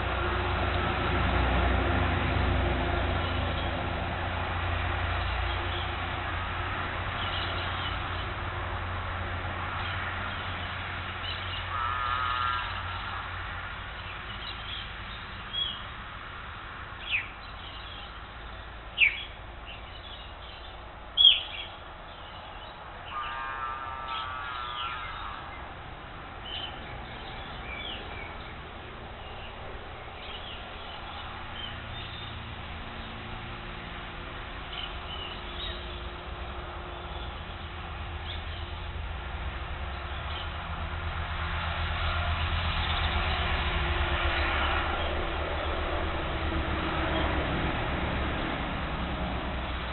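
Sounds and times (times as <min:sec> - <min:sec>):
steady background noise: 0:00.0 - 0:49.9
bird sharp downward calls: 0:11.3 - 0:13.2, 0:21.2 - 0:21.8, 0:22.4 - 0:25.7
bird trills: 0:20.0 - 0:25.6.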